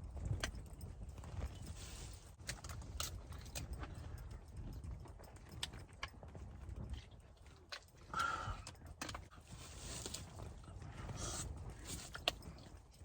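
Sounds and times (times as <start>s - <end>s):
cooking gear clicks and knocks: 2.3s - 4.3s.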